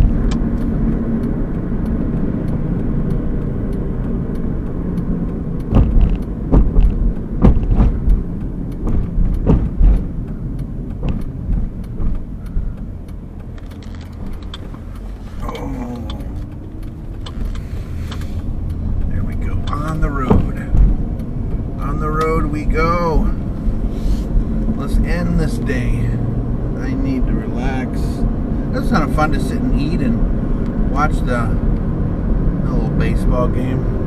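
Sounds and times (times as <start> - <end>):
road and engine rumble: 0.0 - 34.0
loud knocks and bumps: 5.7 - 8.2, 8.8 - 10.1.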